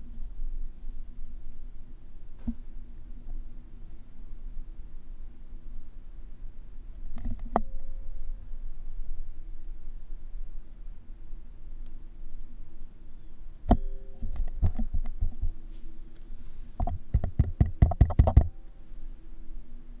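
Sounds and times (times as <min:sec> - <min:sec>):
microphone hiss with low hum: 0:00.0 - 0:20.0
clicks and taps: 0:16.8 - 0:18.5
sharp knock: 0:16.8 - 0:18.5.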